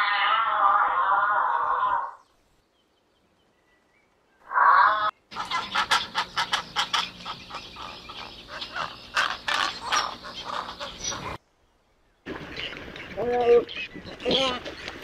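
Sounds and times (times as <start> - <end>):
sharp bird calls: 1.0 - 11.4.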